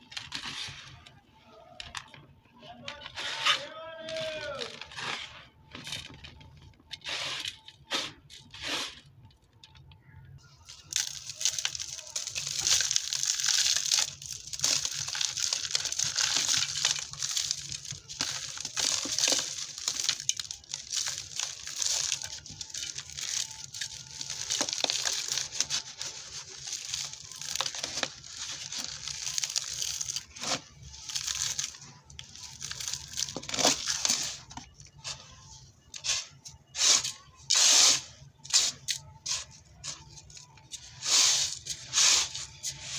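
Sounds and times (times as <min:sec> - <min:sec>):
dry dirt crunching and crackling: 0:09.1 - 0:36.4.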